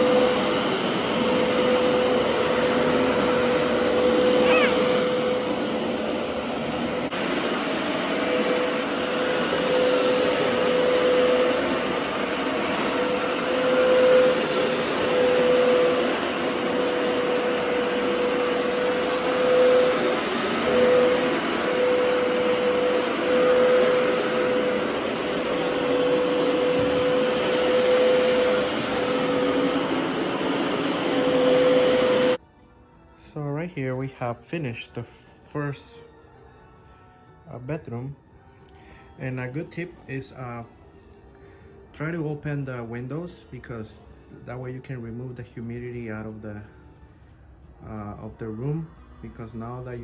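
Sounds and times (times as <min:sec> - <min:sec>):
carpet washer motor droning: 0:00.0 - 0:32.4.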